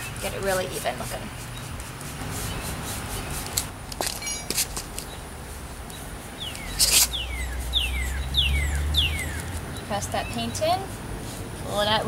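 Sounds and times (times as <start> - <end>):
loud rasp: 6.2 - 8.2.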